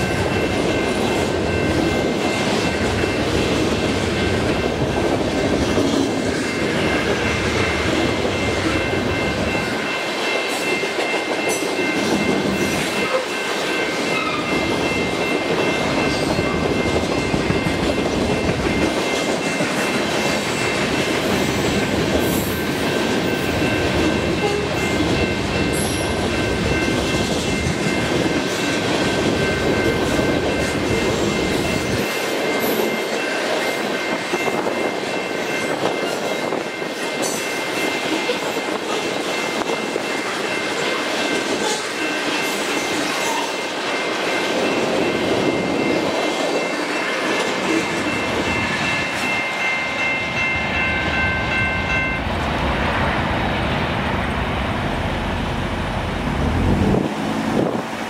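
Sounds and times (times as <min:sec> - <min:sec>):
road traffic noise: 0:50.5 - 0:58.0.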